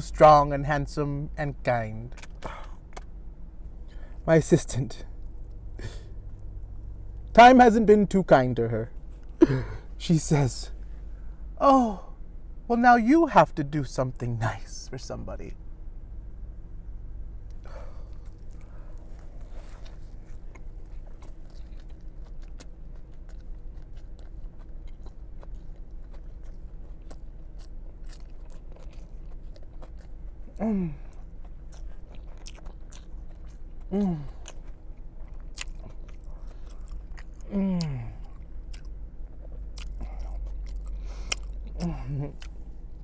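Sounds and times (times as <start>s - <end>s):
chewing and biting sandwich: 2.1s - 4.2s, 17.5s - 43.0s
person humming mmm: 30.6s - 31.2s, 33.9s - 34.5s, 37.4s - 38.4s, 41.7s - 42.5s.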